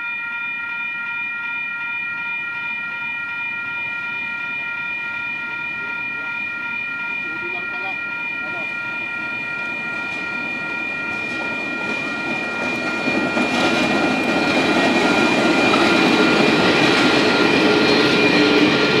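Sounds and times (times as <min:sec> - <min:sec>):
level crossing warning alarm: 0:00.0 - 0:19.0
locomotives passing over crossing: 0:05.4 - 0:19.0.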